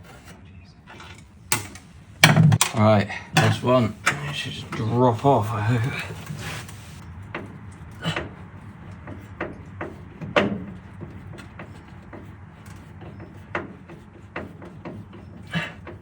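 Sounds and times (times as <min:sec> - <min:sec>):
loud knocks: 0:01.5 - 0:02.8, 0:07.3 - 0:16.0.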